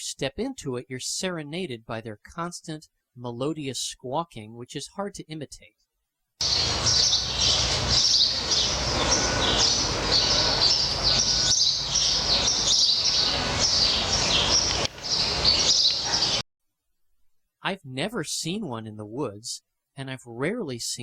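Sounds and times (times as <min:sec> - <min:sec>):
sparrows chirping: 0:06.4 - 0:16.4.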